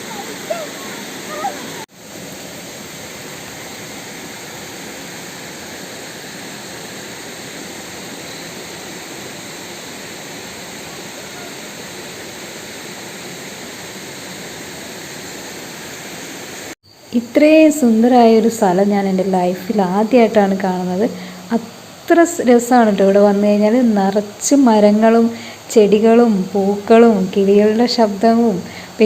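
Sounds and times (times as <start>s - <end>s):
river water flowing over rocks: 0.0s - 14.3s.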